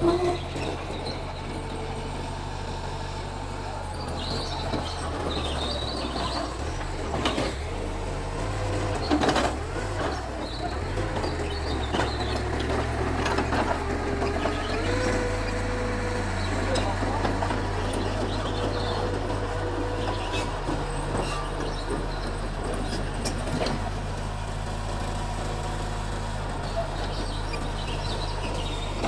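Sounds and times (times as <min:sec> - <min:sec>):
bulldozer diesel engine droning: 0:00.0 - 0:29.0.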